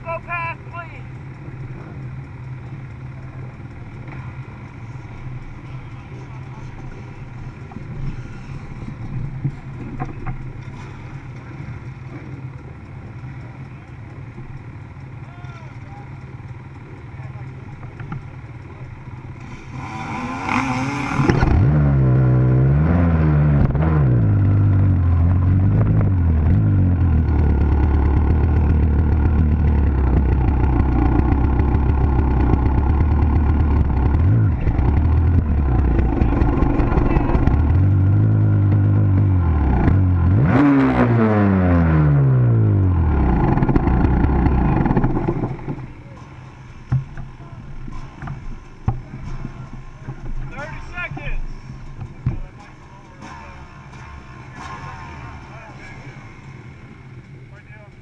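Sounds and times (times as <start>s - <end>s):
dirt bike engine revving: 19.2s - 49.2s.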